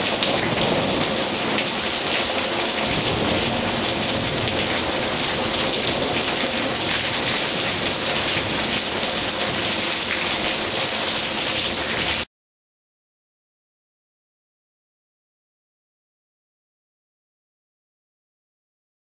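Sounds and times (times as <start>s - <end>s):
steady rain falling: 0.0s - 12.3s.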